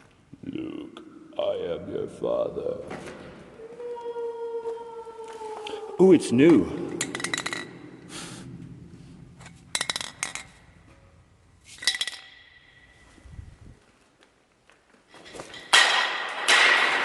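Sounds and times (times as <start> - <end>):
metal clinking and clanking: 6.9 - 7.9, 9.4 - 11.0, 11.7 - 13.1, 15.1 - 17.0.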